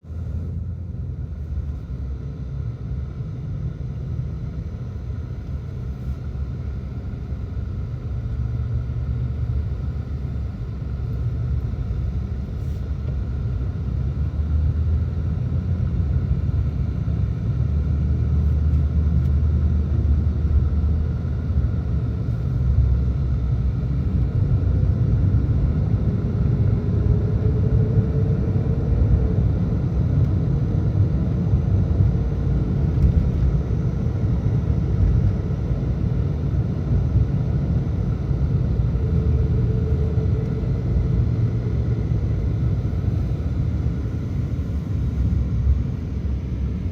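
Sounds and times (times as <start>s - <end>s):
car engine and road rumble: 0.0s - 46.9s
faint rising whine: 21.8s - 46.9s.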